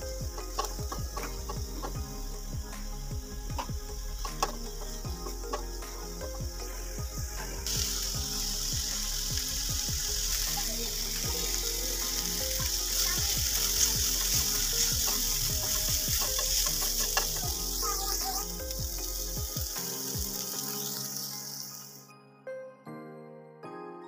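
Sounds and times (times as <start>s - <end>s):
chicken sizzling in a frying pan: 0.0s - 2.8s, 7.6s - 22.1s
spoon stirring in a pan: 11.6s - 19.6s.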